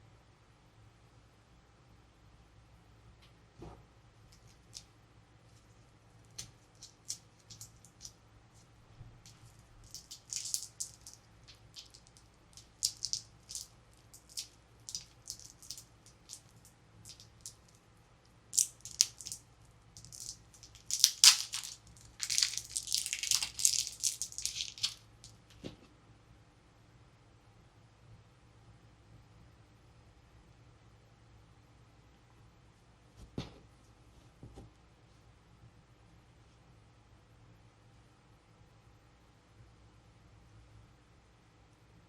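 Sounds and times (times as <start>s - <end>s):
plastic packaging crinkling: 9.3s - 17.8s, 18.6s - 19.4s, 20.0s - 25.0s.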